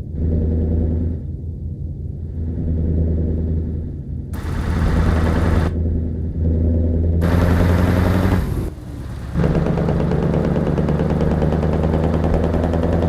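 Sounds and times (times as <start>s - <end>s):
diesel engine revving: 2.4s - 13.0s
harsh hissing blast: 4.4s - 5.7s.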